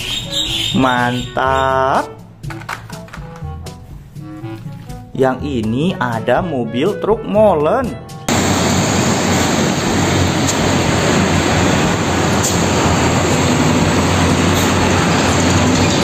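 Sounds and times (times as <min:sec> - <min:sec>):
road noise: 0:08.3 - 0:16.0
truck engine drone: 0:08.3 - 0:16.0.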